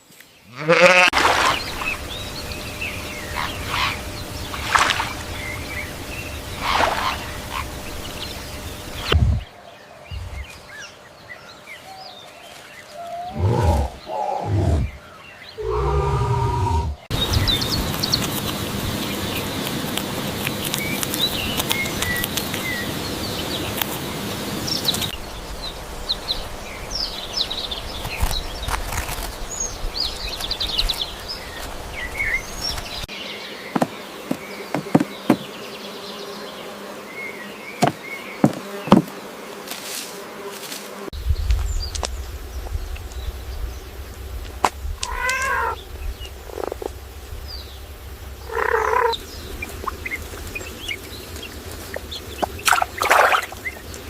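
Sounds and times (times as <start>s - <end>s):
bird chirps: 47.4s - 53.9s
short pitched animal calls: 48.5s - 49.2s.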